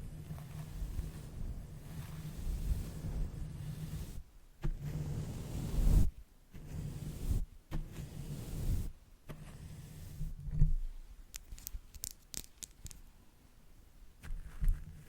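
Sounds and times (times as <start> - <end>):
brush rushing across microphone: 0.0 - 10.5.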